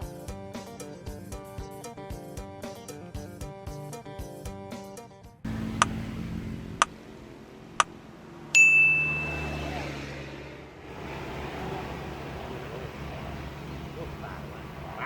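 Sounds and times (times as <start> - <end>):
outdoor background noise: 5.5 - 15.0
sharp ticks: 5.6 - 6.0
bright ringing ding: 8.6 - 9.6.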